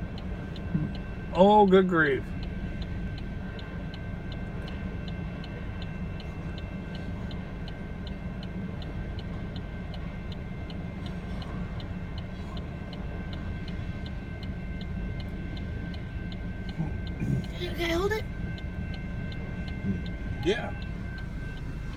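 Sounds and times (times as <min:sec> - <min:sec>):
railroad crossing bell ringing: 0:00.0 - 0:21.9
train rumbling past: 0:00.0 - 0:21.9.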